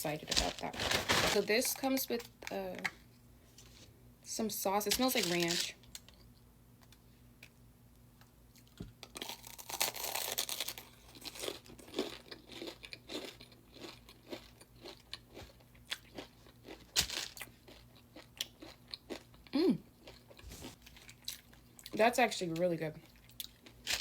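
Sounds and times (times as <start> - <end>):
person crunching and chewing food: 0.0 - 3.0, 4.9 - 6.4, 8.5 - 22.0, 23.0 - 24.0.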